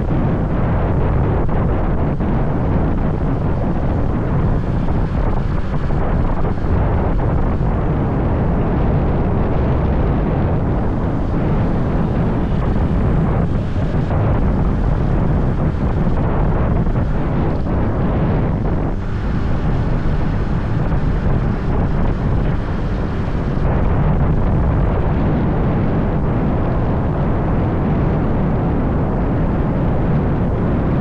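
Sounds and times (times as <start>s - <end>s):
motorbike road noise: 0.0s - 31.0s
wind buffeting microphone: 0.0s - 31.0s.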